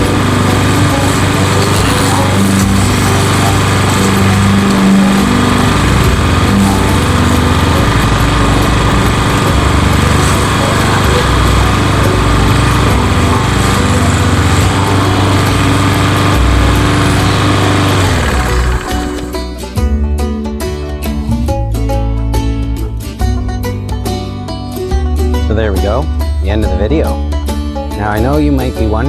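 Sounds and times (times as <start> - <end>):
lawn mower engine running: 0.0 - 19.8.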